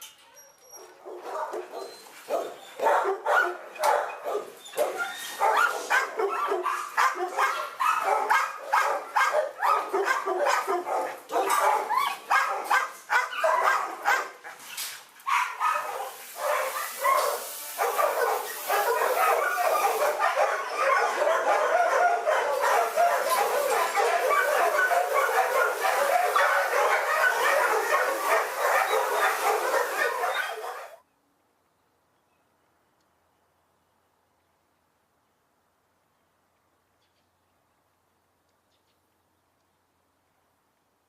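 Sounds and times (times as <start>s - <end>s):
dogs barking: 1.0s - 14.6s, 15.2s - 31.0s.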